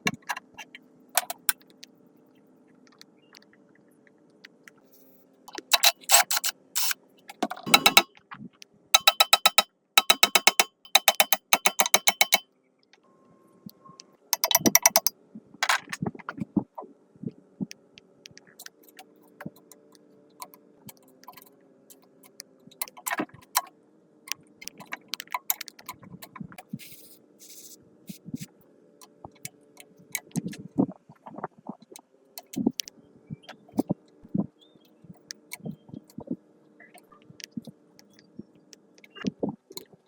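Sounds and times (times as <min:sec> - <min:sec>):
clicks and knocks of tools: 0:00.0 - 0:01.7, 0:05.5 - 0:08.1, 0:09.0 - 0:12.4, 0:14.4 - 0:16.0, 0:18.6 - 0:23.7, 0:24.3 - 0:26.7, 0:32.4 - 0:32.6.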